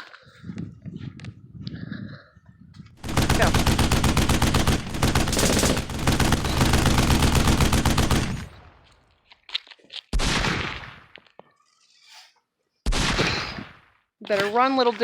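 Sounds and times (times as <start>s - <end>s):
rapid automatic gunfire: 3.0s - 8.6s.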